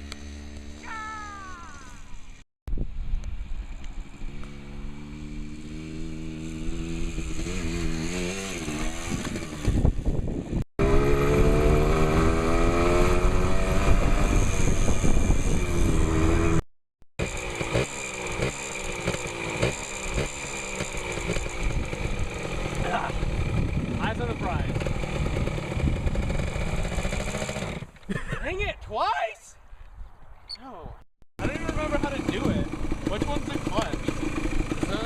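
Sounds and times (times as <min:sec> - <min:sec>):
small motorbike engine revving: 0:03.9 - 0:16.6, 0:17.2 - 0:28.0, 0:31.4 - 0:35.0.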